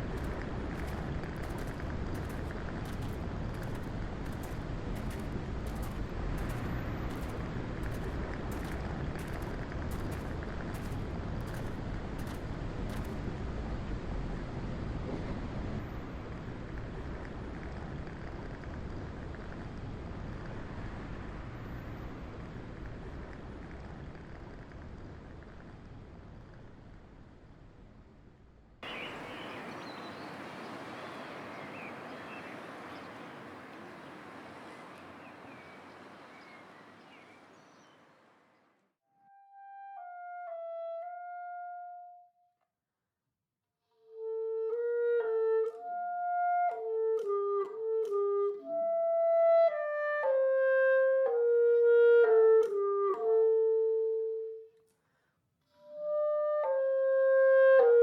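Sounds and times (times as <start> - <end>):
low rumbling background noise: 0.0 - 38.6
steady outdoor hiss: 0.0 - 38.7
short bird chirps: 28.8 - 38.1
solo wind instrument melody: 44.1 - 54.7.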